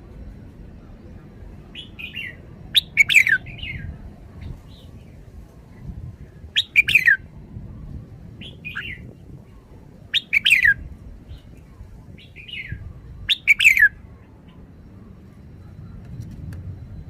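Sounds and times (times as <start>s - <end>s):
bird singing whistled phrases: 1.8s - 3.9s, 6.6s - 7.3s, 8.4s - 9.1s, 10.1s - 11.4s, 12.2s - 14.0s.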